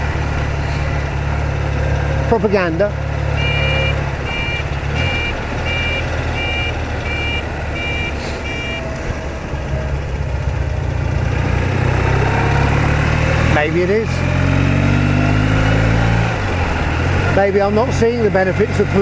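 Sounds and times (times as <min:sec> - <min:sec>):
motorcycle engine running: 0:00.0 - 0:13.2
two-tone electronic beeping: 0:03.4 - 0:09.0.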